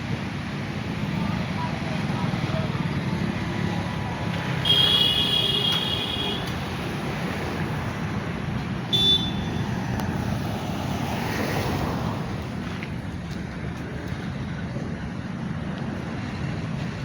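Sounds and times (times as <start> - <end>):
traffic passing in rain: 0.0 - 17.0
vehicle horn blasts: 4.6 - 6.5, 8.9 - 9.6.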